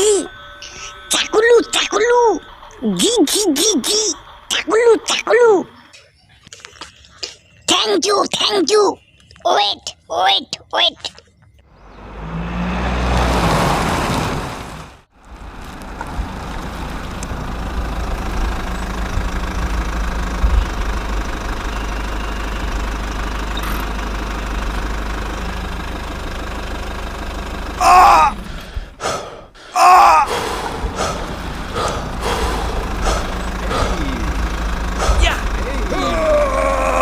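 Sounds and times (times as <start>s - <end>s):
vehicle engine rumbling: 0.0s - 37.0s
short voice sound: 33.1s - 34.4s.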